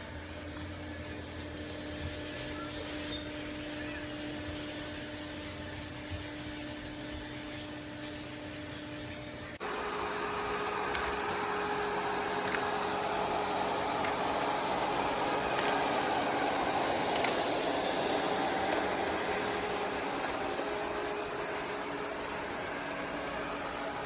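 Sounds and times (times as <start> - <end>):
faint steady hum: 0.0 - 24.0
robot vacuum suction motor whir: 9.6 - 24.0.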